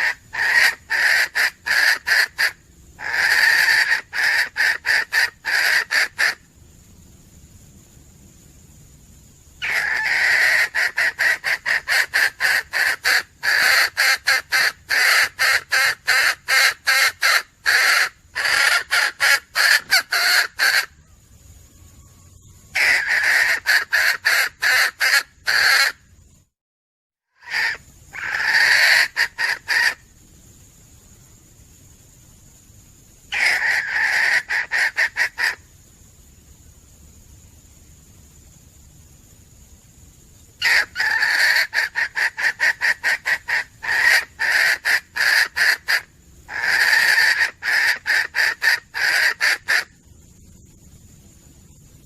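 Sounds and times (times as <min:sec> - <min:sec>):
hen cackling: 0:00.0 - 0:06.5, 0:09.6 - 0:21.8, 0:22.7 - 0:26.0, 0:27.4 - 0:30.0, 0:33.3 - 0:35.6, 0:40.6 - 0:50.0.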